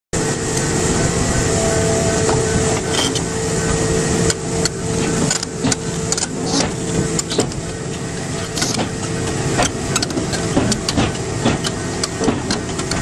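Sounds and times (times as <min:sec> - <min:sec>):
heavy vehicle engine running: 0:00.1 - 0:13.0
knocks and clanks: 0:02.2 - 0:13.0.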